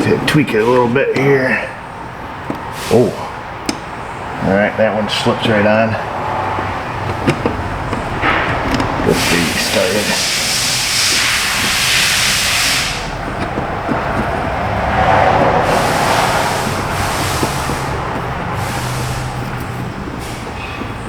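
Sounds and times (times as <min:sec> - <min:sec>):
hissing: 0:02.6 - 0:03.9, 0:06.0 - 0:21.0.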